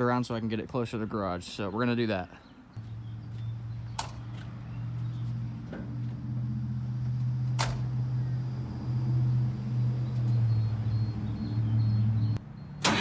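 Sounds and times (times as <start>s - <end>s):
diesel engine running: 2.8s - 13.0s.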